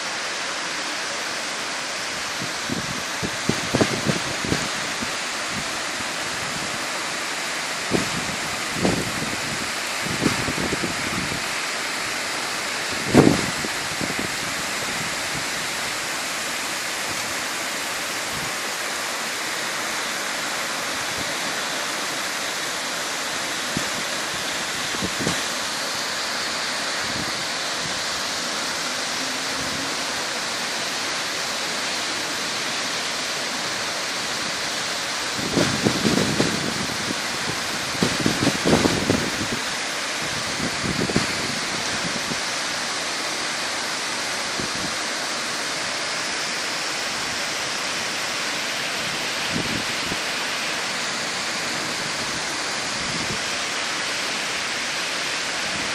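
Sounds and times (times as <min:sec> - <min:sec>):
heavy rain hissing: 0:00.0 - 0:55.9.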